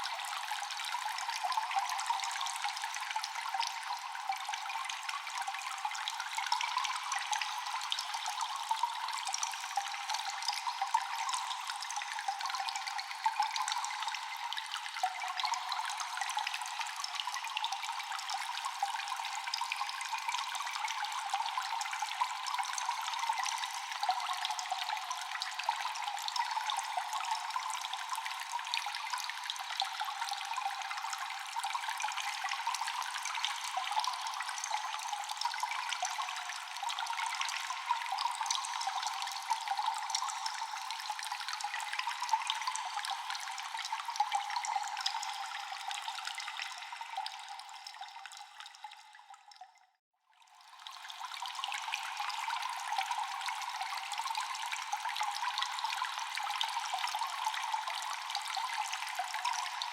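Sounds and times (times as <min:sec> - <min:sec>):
water dripping in cave: 0:00.0 - 0:59.9.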